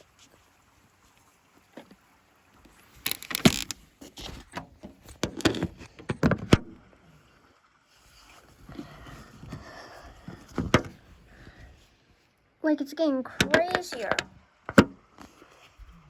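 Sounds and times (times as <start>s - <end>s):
objects being handled: 2.7s - 6.6s, 8.2s - 11.1s, 13.4s - 15.8s.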